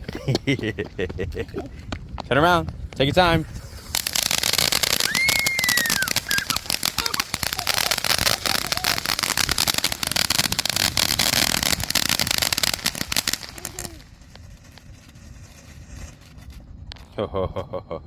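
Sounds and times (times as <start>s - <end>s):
fireworks crackling: 2.8s - 17.1s.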